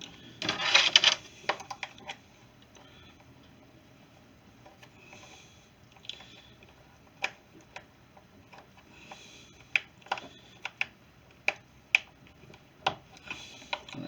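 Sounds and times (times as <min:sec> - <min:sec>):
tools and plastic parts clicking: 0:00.4 - 0:02.9.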